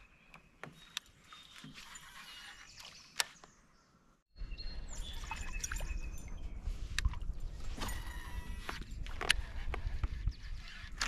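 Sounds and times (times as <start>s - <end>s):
birds chirping and singing: 0.0s - 6.8s.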